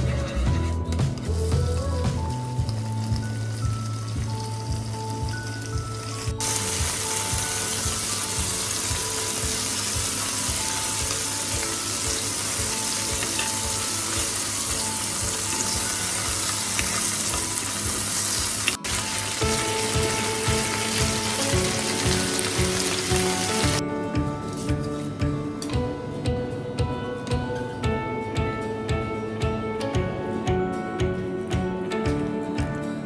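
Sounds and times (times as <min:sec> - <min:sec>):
chicken sizzling in oil: 0:02.6 - 0:23.8.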